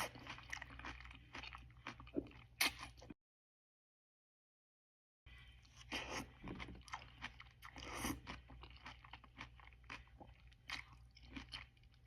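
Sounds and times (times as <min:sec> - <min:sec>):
chewing crunchy vegetables: 0:00.0 - 0:03.2, 0:05.6 - 0:12.0.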